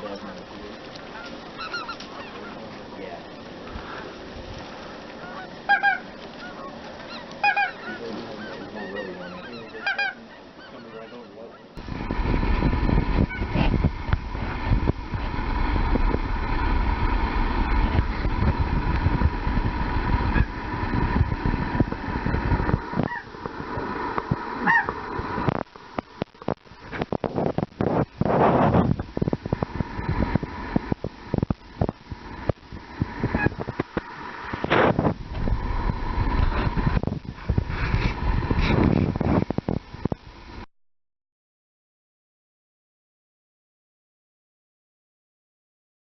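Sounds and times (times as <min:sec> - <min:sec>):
geese honking: 0:00.0 - 0:11.8, 0:13.2 - 0:13.8, 0:20.1 - 0:21.2, 0:21.8 - 0:23.9, 0:24.6 - 0:25.2, 0:33.2 - 0:34.9
faint steady whine: 0:00.0 - 0:40.7
loud low rumble: 0:11.8 - 0:25.6, 0:27.6 - 0:40.1.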